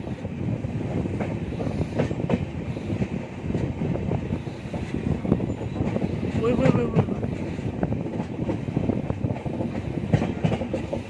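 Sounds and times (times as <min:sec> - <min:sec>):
passenger train rumbling: 0:00.0 - 0:11.0
wheels clacking over rail joints: 0:04.4 - 0:11.0.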